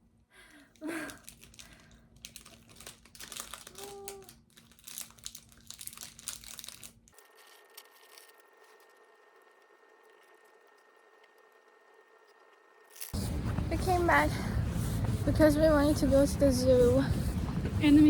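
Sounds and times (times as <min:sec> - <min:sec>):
crinkling handling noise: 0:00.5 - 0:08.8.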